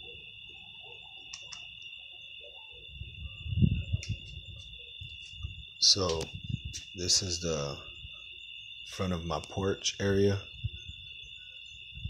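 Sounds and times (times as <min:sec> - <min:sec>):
crickets trilling: 0:00.0 - 0:12.0
clicks: 0:01.3 - 0:01.7.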